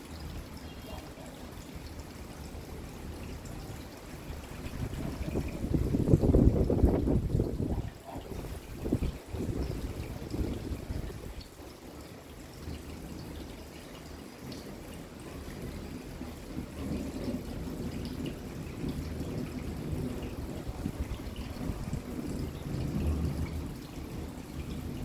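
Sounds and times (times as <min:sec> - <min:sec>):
steady rain falling: 0:00.0 - 0:25.0
water trickling and dripping: 0:00.0 - 0:25.0
low uneven rumble: 0:02.2 - 0:11.6, 0:16.5 - 0:25.0.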